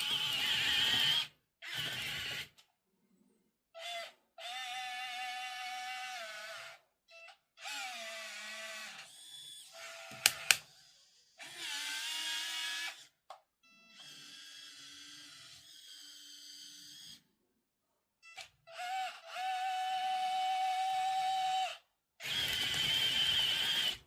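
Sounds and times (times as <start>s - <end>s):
small electric motors whining: 7.6s - 13.1s, 13.9s - 17.2s, 18.4s - 24.0s
sharp clicks: 10.1s - 10.6s.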